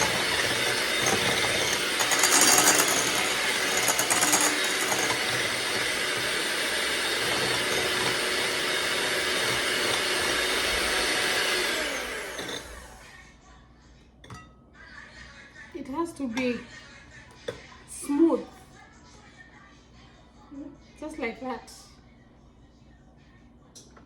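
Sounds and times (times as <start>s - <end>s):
mixer rattling: 0.0s - 13.0s
electric mixer whipping: 0.0s - 13.2s.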